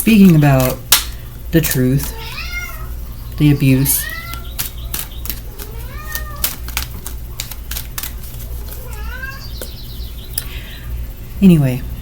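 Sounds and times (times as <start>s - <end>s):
cat meowing: 2.1s - 6.6s, 8.8s - 9.6s.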